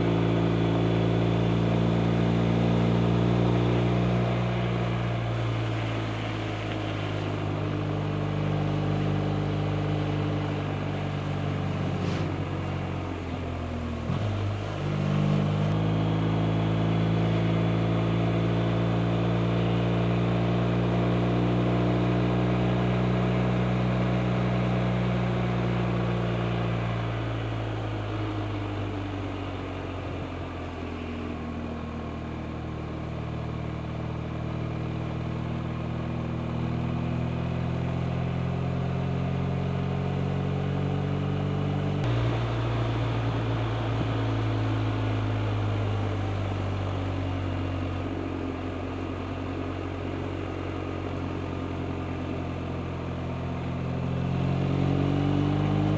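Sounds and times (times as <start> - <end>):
motorcycle engine accelerating: 33.9 - 55.9.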